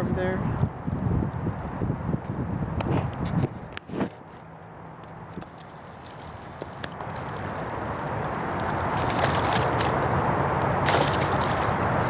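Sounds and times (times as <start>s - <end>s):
floodwater rushing and sloshing: 5.0s - 12.0s.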